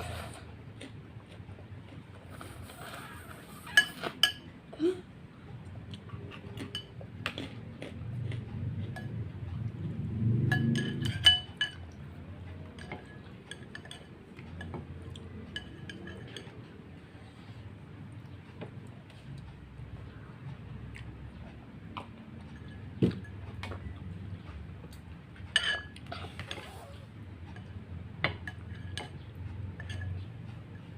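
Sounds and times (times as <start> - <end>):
utensils clinking against bowl: 3.6 - 4.5, 6.3 - 7.5, 8.8 - 9.7, 10.4 - 16.8, 22.4 - 24.0, 25.4 - 26.9, 27.5 - 30.9.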